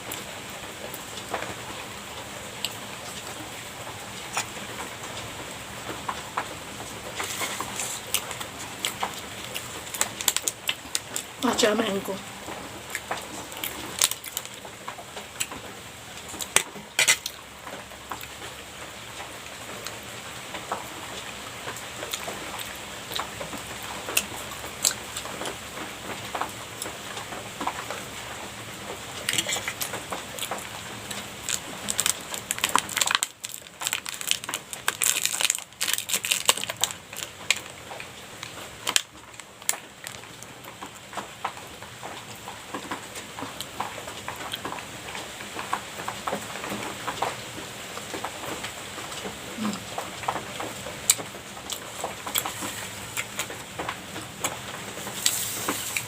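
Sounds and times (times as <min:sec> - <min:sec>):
person chewing pastry wetly: 0:06.8 - 0:11.4, 0:12.5 - 0:15.6, 0:21.7 - 0:25.6, 0:26.4 - 0:41.6, 0:49.2 - 0:56.0.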